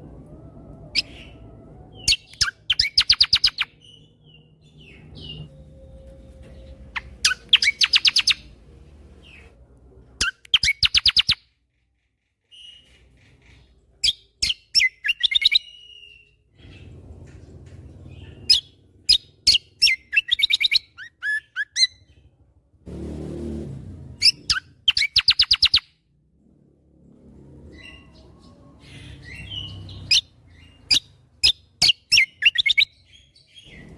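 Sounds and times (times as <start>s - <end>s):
bird whistles and chirps: 0.9s - 8.5s, 10.2s - 11.5s, 14.0s - 16.8s, 18.4s - 22.1s, 24.2s - 25.9s, 27.7s - 33.9s
bird rattling song: 2.1s - 4.0s, 6.8s - 8.5s, 24.2s - 25.9s.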